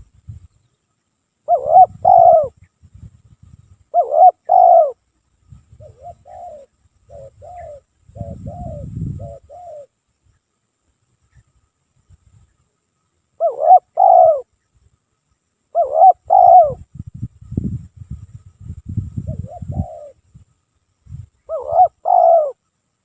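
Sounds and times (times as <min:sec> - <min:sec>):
dove cooing: 0:01.5 - 0:02.6, 0:03.9 - 0:05.0, 0:05.8 - 0:09.9, 0:13.4 - 0:14.5, 0:15.7 - 0:16.8, 0:19.3 - 0:20.2, 0:21.5 - 0:22.6.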